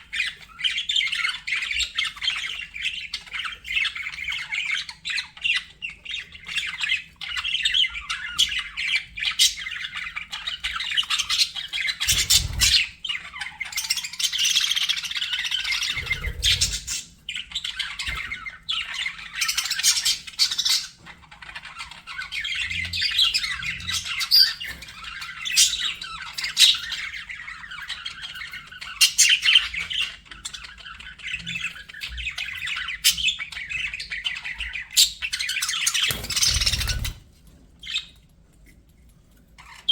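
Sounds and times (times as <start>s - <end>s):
budgerigars chattering and warbling: 0.0s - 38.2s
sharp bird squawks and chirps: 11.3s - 18.4s, 35.0s - 37.2s.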